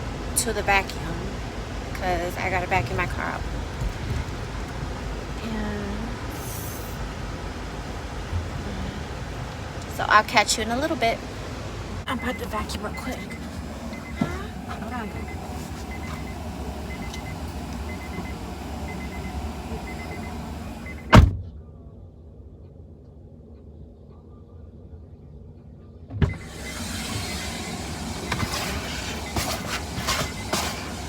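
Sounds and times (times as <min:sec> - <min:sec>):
car door slamming: 0:12.7 - 0:21.4, 0:26.2 - 0:31.0.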